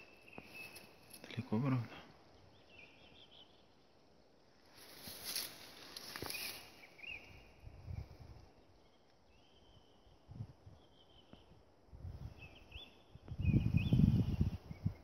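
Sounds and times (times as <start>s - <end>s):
wind rumbling on microphone: 7.2s - 8.9s, 9.9s - 15.0s.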